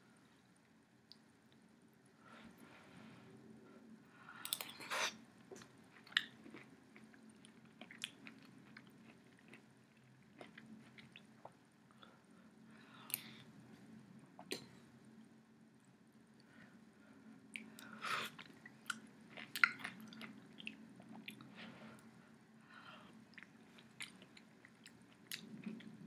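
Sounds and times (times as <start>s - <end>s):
person chewing with wet mouth noises: 4.4s - 12.1s, 17.5s - 22.1s, 23.0s - 26.0s.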